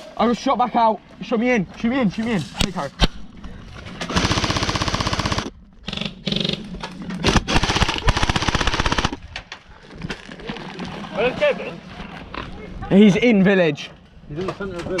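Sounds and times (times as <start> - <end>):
airsoft rifle firing bursts: 4.1 - 6.5, 7.2 - 9.2.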